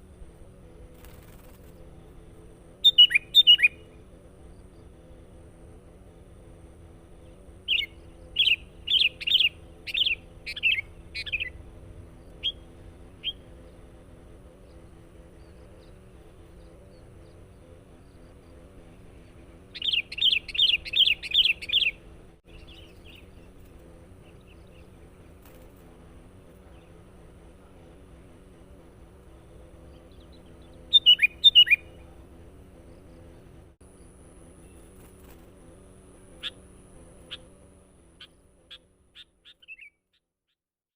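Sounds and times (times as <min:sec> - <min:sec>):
faint steady hum: 0:00.0 - 0:40.0
bird chirping: 0:02.8 - 0:05.0, 0:07.1 - 0:25.2, 0:29.2 - 0:33.5, 0:38.2 - 0:40.6.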